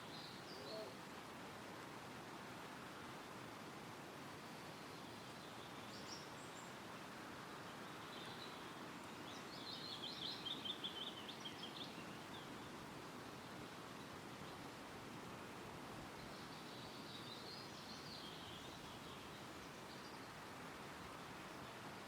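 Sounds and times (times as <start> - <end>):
songbird singing: 0.0 - 1.2, 4.4 - 14.9, 16.1 - 22.0
wind rustling through trees: 0.0 - 22.0.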